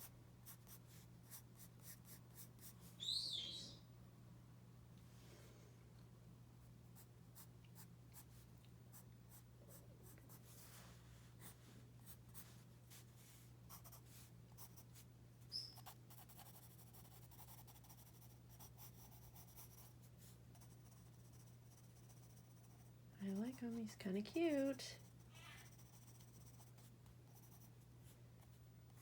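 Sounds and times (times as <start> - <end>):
pencil scratching on paper: 15.8 - 20.0, 20.6 - 23.5, 25.0 - 27.7.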